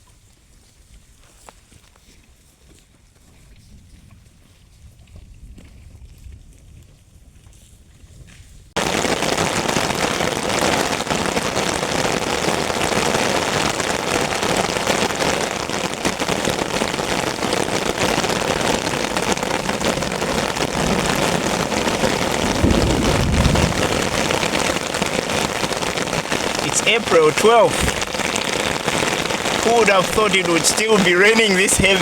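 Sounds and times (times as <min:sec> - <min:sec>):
heavy rain hissing: 0:16.5 - 0:32.0
deep low rumble: 0:22.1 - 0:24.7.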